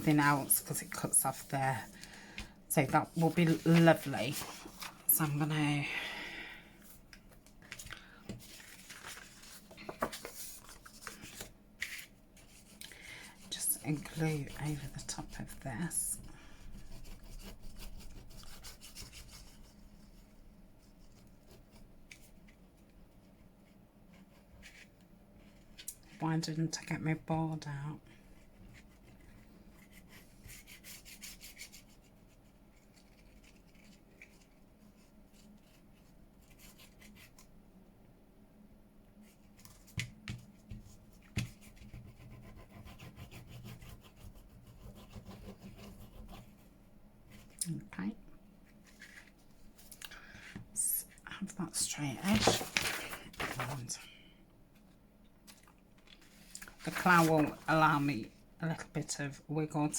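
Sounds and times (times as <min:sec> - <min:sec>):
paper rubbing and rustling: 0:03.0 - 0:05.3, 0:07.7 - 0:12.8, 0:28.4 - 0:37.5, 0:48.6 - 0:49.9, 0:52.2 - 0:53.9, 0:55.5 - 0:58.1.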